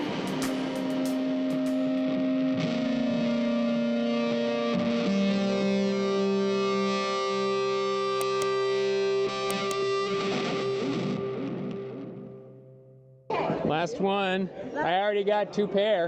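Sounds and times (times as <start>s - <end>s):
distorted electric guitar: 0.0s - 13.3s.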